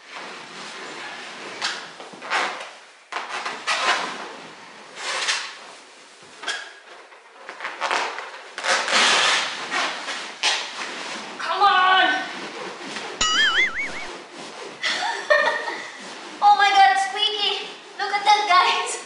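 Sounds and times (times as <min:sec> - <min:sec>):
rubber balloons rubbing and creaking: 0:00.0 - 0:19.0.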